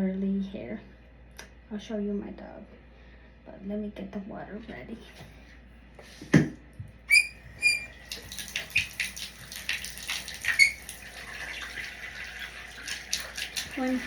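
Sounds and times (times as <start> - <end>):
high-pitched squeaks: 7.1 - 8.0, 10.5 - 10.8
water running from tap: 7.1 - 14.0.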